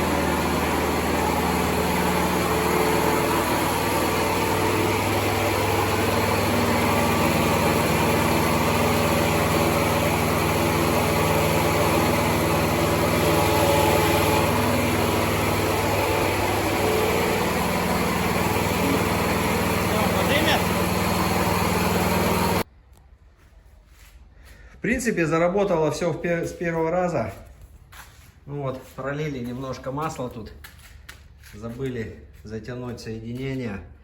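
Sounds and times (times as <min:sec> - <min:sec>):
excavator engine running: 0:00.0 - 0:22.7.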